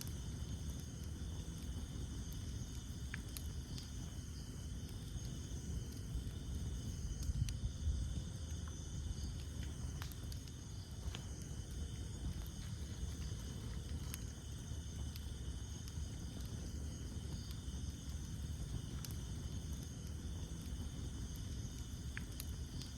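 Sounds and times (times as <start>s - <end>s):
campfire crackling: 0.0s - 22.9s
night insects chirring: 0.0s - 22.9s.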